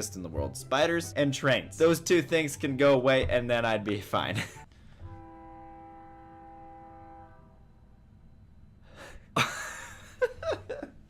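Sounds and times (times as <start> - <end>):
train horn chord: 5.0 - 7.8.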